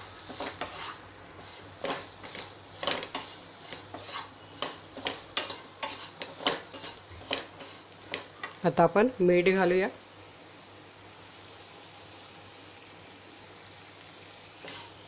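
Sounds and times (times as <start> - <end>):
food sizzling in hot oil: 0.0 - 15.0
wooden spatula scraping a pan: 0.1 - 8.6, 14.6 - 15.0.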